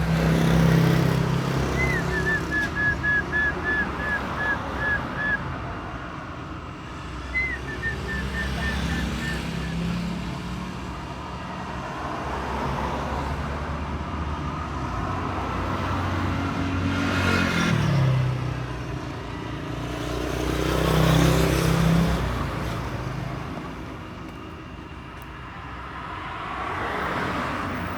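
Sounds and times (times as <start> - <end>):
vehicle passing: 0.0 - 10.7
road traffic rumble: 0.0 - 27.9.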